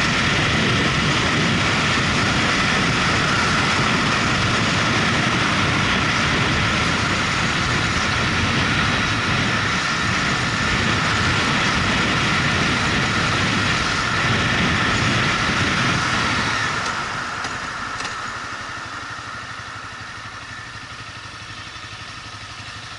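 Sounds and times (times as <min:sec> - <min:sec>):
wind noise: 0:00.0 - 0:18.1
motorcycle engine running: 0:00.0 - 0:22.9
road noise: 0:00.0 - 0:22.9.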